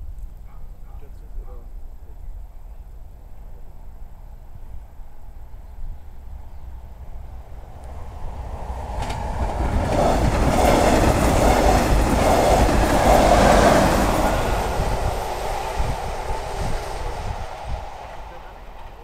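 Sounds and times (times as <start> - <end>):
train running noise: 6.1 - 19.0.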